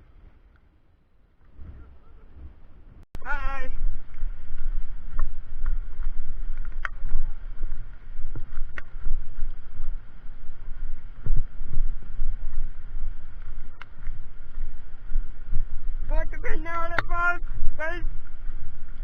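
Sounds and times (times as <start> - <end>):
wind buffeting microphone: 1.4 - 19.0.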